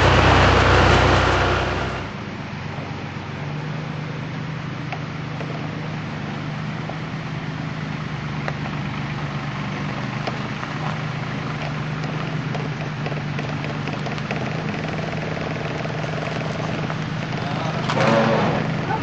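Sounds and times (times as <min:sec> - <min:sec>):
harvester engine running: 0:00.0 - 0:19.0
machinery ticks and rattles: 0:08.4 - 0:19.0.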